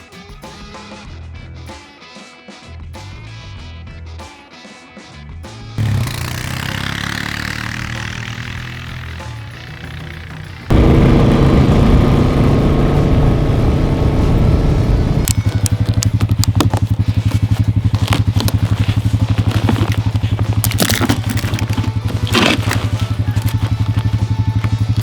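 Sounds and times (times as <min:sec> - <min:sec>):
atv engine running: 0:05.8 - 0:25.0
clicks and scrapes: 0:15.2 - 0:25.0.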